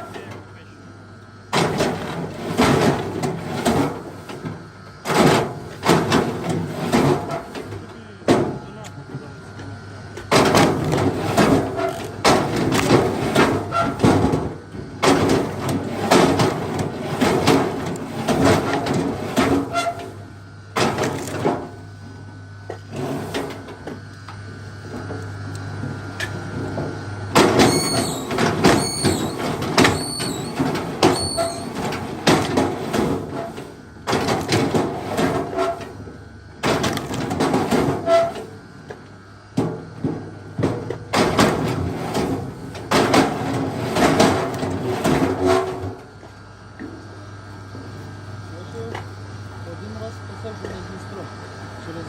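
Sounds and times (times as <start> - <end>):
steady low hum: 0.0 - 52.0
short high squeaks: 27.7 - 29.4, 30.0 - 31.7.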